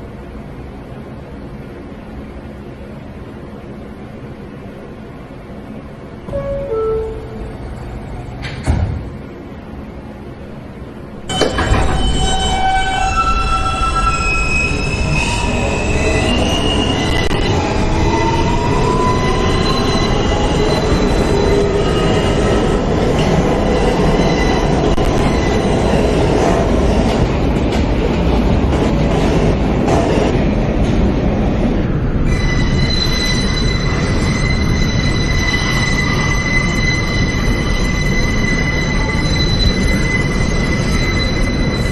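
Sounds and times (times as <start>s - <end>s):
train wheels rumbling on rails: 0.0s - 41.9s
high-pitched wheel squeal: 11.6s - 22.6s, 32.3s - 41.9s.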